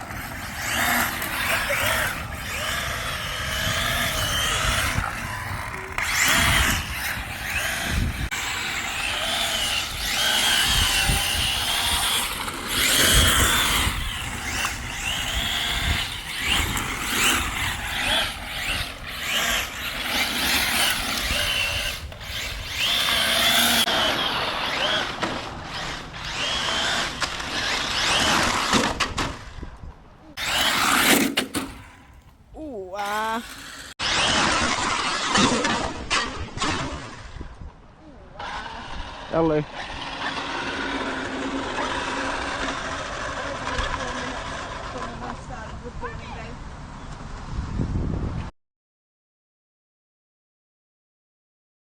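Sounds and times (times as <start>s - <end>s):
electric motor whining: 0.0s - 28.8s, 30.4s - 32.0s, 32.6s - 35.2s.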